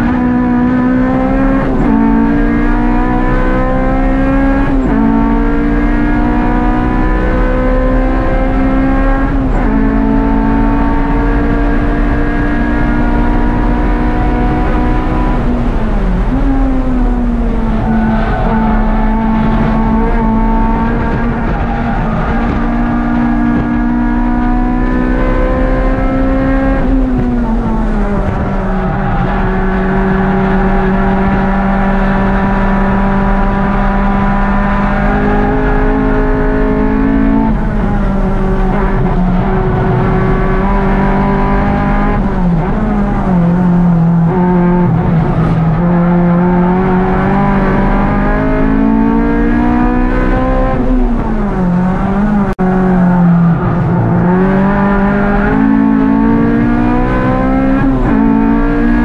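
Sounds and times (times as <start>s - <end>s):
car engine revving high: 0.0s - 59.0s.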